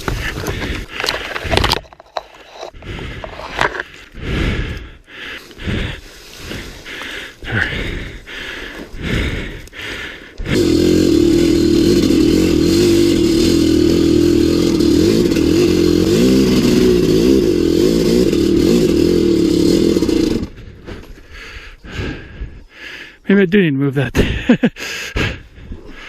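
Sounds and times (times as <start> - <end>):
dirt bike engine running: 9.0 - 20.8.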